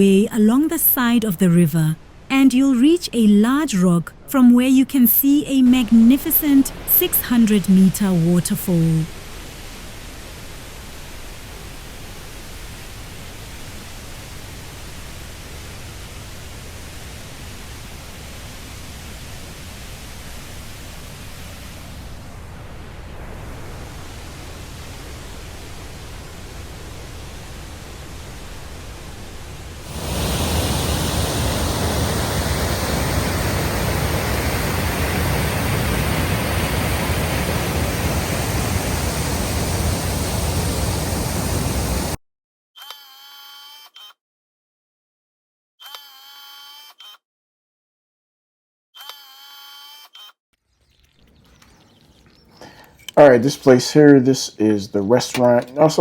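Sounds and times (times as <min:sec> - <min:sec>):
waterfall rushing: 0:05.8 - 0:42.2.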